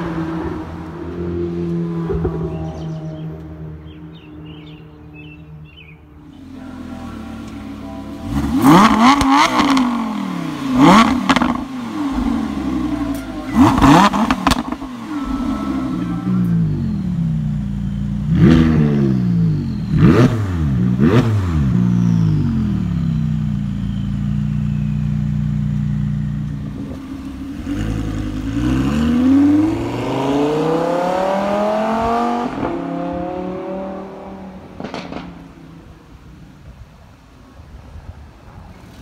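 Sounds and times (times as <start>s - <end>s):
car engine revving and idling: 0.0s - 35.2s
car accelerating away: 6.4s - 35.6s.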